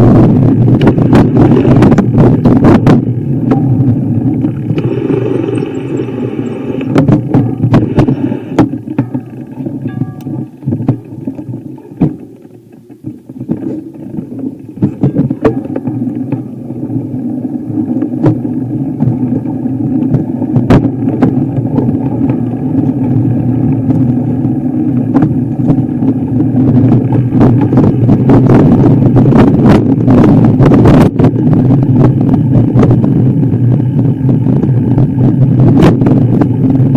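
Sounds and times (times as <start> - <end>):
knocks and rattles: 0.0 - 23.1
vehicle engine driving over rough ground: 0.0 - 36.9.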